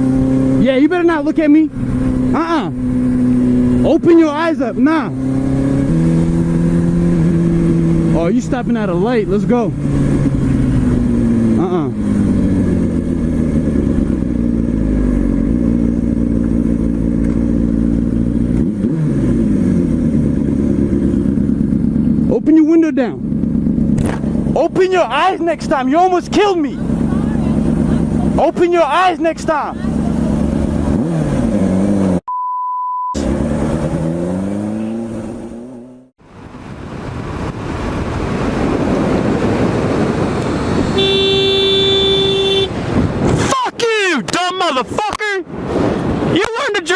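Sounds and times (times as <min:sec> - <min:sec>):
motorcycle engine running: 0:00.0 - 0:32.2, 0:40.6 - 0:42.9
wind and road noise: 0:00.0 - 0:32.2, 0:33.2 - 0:46.9
censor bleep: 0:32.3 - 0:33.2
vehicle horn: 0:41.0 - 0:42.8.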